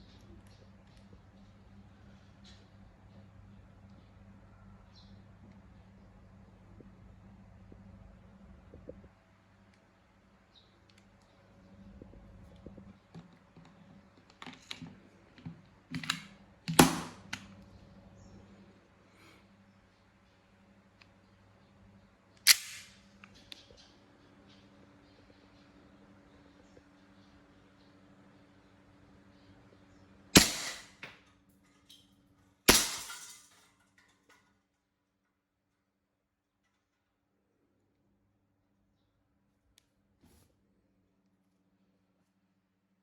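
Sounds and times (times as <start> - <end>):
airsoft pistol shots: 16.8 - 17.3, 22.5 - 23.0, 30.4 - 31.0, 32.7 - 33.3
pistol handling clicks and clacks: 22.4 - 23.6
loud sharp snap: 22.5 - 23.0, 30.4 - 31.0.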